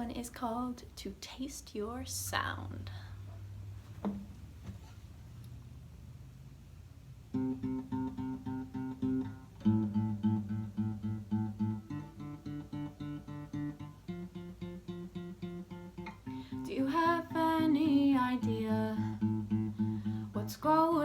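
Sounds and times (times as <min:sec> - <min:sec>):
acoustic guitar strumming chords: 0:07.3 - 0:21.0.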